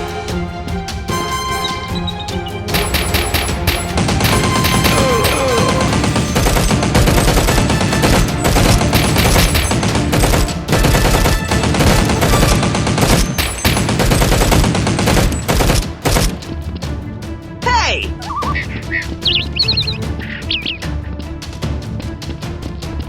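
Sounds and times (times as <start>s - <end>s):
rapid automatic gunfire: 2.7s - 16.4s.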